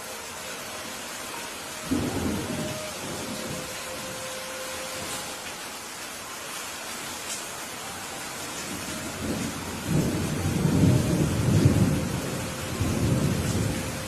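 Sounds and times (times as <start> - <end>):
steady rain: 0.0 - 14.0
thunder rolling: 1.8 - 4.1, 9.1 - 14.0.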